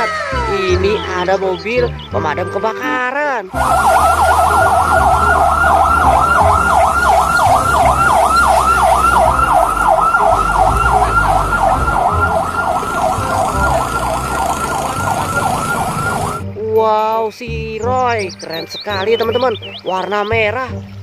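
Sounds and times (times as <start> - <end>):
toy fire truck siren wailing: 3.6 - 16.4.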